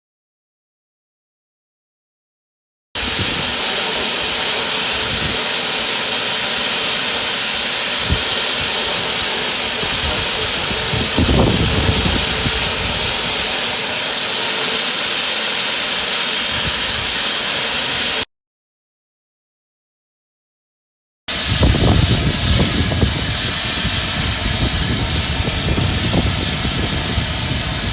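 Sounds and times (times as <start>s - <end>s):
steam locomotive hissing steam: 3.0s - 18.3s, 21.3s - 27.9s.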